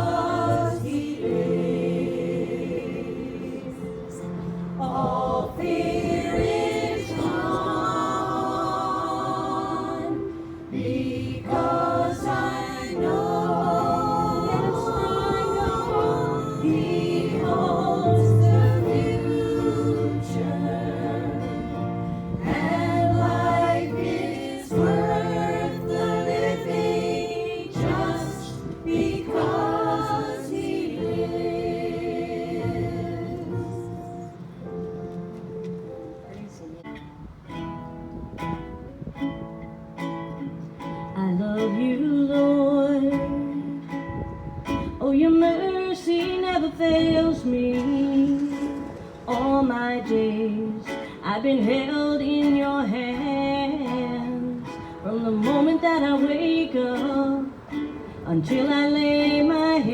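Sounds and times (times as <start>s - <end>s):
group singing gospel song: 0.0s - 34.4s.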